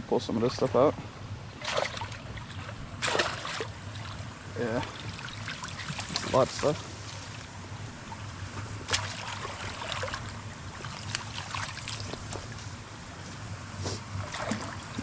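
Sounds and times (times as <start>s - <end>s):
splashes and knocks of debris: 1.6s - 4.2s, 8.8s - 12.5s
creek water running: 1.6s - 13.2s, 13.8s - 15.0s.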